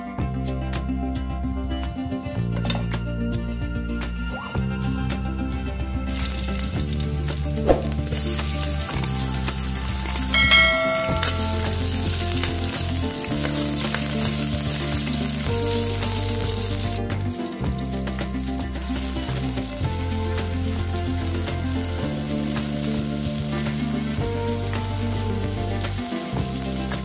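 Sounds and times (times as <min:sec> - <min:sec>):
onion and garlic sizzling in oil: 0:06.1 - 0:27.0
short bright chime: 0:10.4 - 0:11.8.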